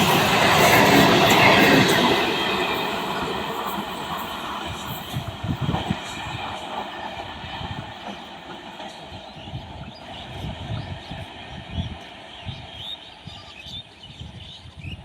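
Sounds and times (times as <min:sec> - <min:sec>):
train passing: 0:00.0 - 0:14.9.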